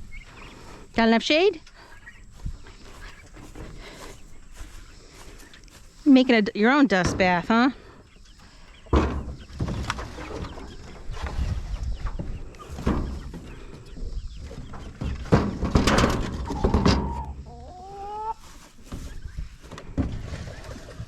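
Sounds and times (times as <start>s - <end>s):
poultry clucking: 0.0s - 21.0s.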